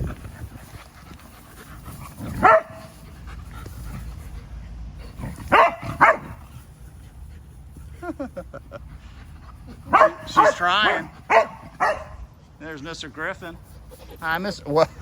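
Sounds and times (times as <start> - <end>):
dog barking: 2.4 - 2.9, 5.5 - 6.4, 9.9 - 12.2.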